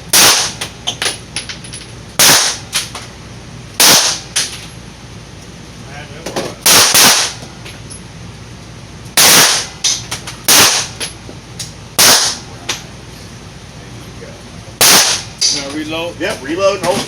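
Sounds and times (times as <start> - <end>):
pistol shots: 0.1 - 0.7, 2.2 - 2.9, 3.8 - 4.4, 6.6 - 7.4, 9.2 - 11.0, 12.0 - 12.4, 14.8 - 15.4
distant gunshots: 2.2 - 2.7, 3.8 - 4.3, 6.7 - 7.4, 9.2 - 9.8, 10.5 - 11.0, 12.0 - 12.4, 14.8 - 15.3.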